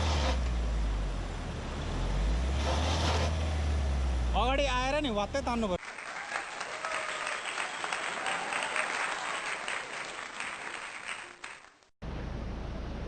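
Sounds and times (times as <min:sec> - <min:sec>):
crowd applauding: 0:05.8 - 0:11.9.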